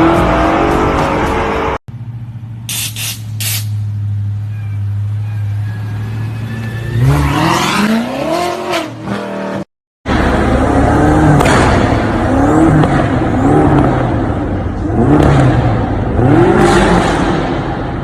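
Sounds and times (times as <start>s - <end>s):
car engine idling and revving: 0.0s - 18.0s
another car engine revving: 7.0s - 18.0s.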